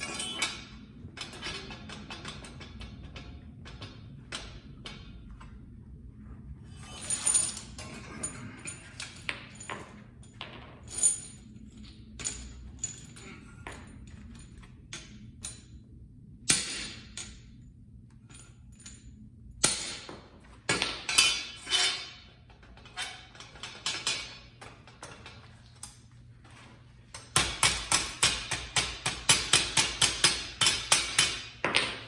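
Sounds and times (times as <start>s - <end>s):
hammer striking steel grate: 27.2s - 32.0s.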